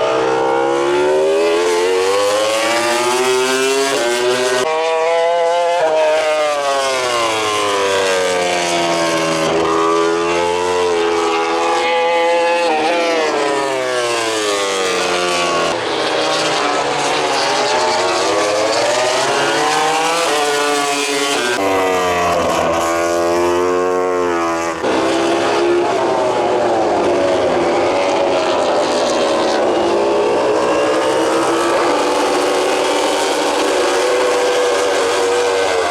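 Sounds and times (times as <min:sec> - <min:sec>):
racing motorcycle engines revving: 0:00.0 - 0:35.9.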